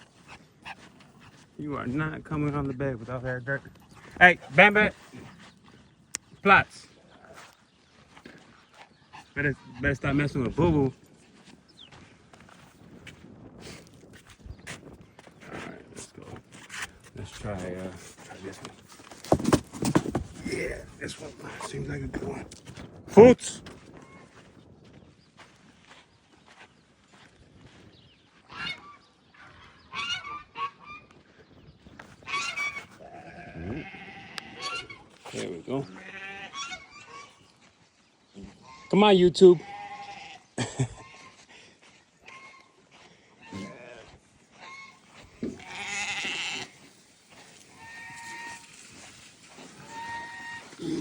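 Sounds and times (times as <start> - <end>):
goose honking: 29.9 - 31.0, 36.2 - 37.4, 44.6 - 46.7, 47.7 - 48.8, 49.5 - 51.0
goats bleating: 32.7 - 35.0, 35.8 - 36.7, 39.5 - 41.4, 43.4 - 46.9, 47.6 - 51.0.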